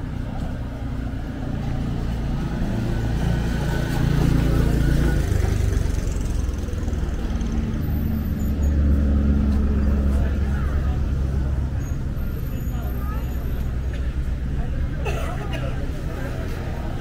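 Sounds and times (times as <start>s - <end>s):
car engine rumbling past: 0.0s - 14.7s
street traffic: 0.0s - 17.0s.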